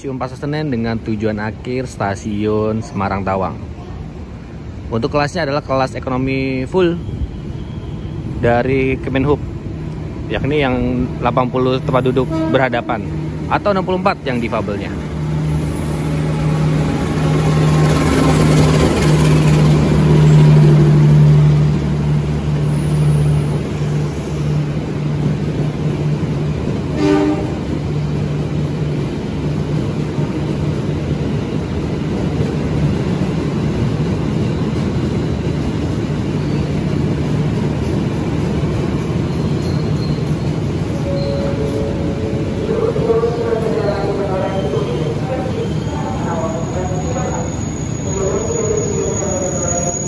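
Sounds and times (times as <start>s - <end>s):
locomotive engine hum: 7.0s - 50.0s
brief high tone: 41.0s - 42.4s.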